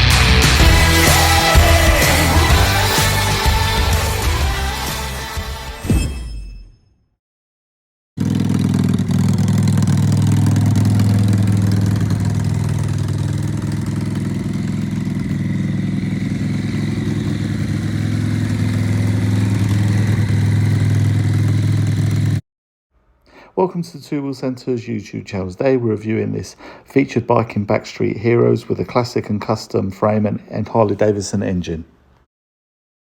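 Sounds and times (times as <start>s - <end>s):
motorcycle engine idling: 8.2s - 22.4s.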